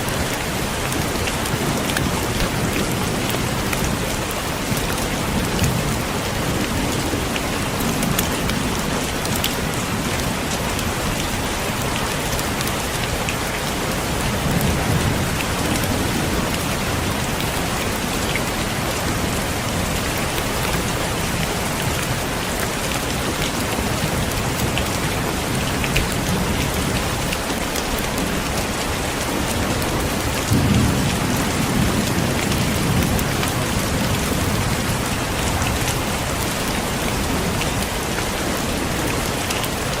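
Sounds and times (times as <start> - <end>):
heavy rain on a window: 0.0 - 40.0.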